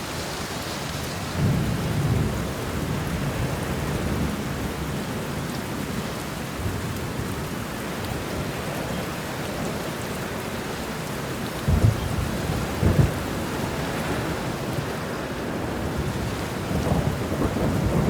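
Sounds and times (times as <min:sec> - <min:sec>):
steady rain: 0:00.0 - 0:18.0
thunder rumbling: 0:11.6 - 0:18.0
thunder booms: 0:11.7 - 0:13.4.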